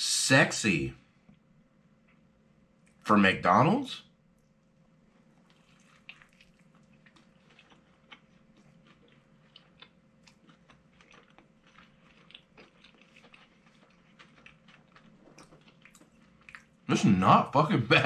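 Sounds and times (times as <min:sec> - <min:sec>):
faint steady hum: 0:00.0 - 0:18.0
person chewing crispy food: 0:05.0 - 0:17.0.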